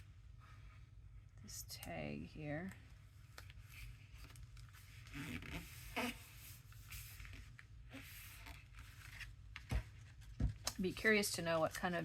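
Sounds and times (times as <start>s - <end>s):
paper rustling: 6.4s - 11.9s.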